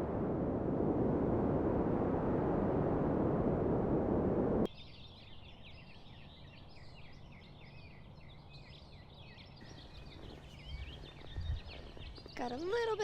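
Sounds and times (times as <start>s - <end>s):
storm wind on microphone: 0.0s - 4.7s, 10.2s - 12.4s
small birds chirping: 4.7s - 13.0s.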